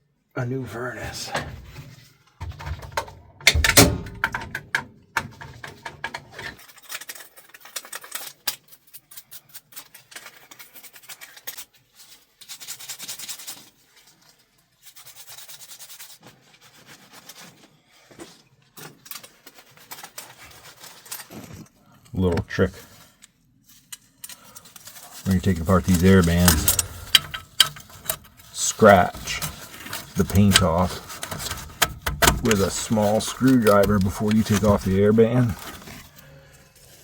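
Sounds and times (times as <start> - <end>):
clicks and knocks: 2.4 - 6.6, 25.6 - 36.1
hand tool scraping metal: 24.8 - 37.0.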